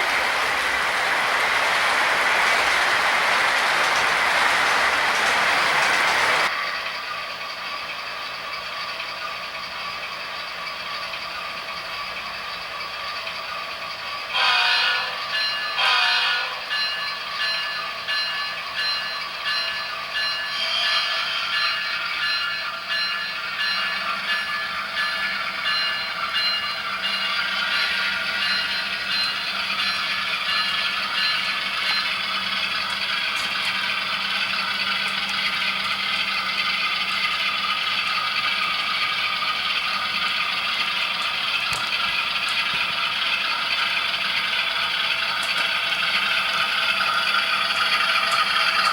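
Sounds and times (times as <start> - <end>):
model train wheels rattling: 25.5 - 48.9.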